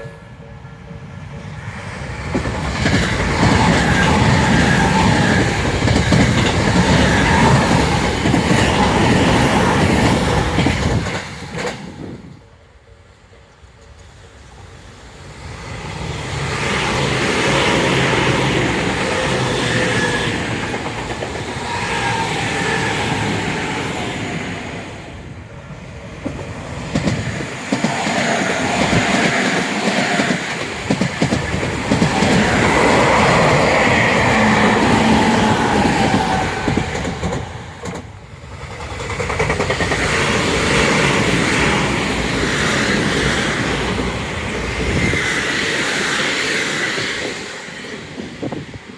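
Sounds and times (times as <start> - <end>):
train wheels clattering over rail joints: 1.4 - 12.2, 26.2 - 47.4.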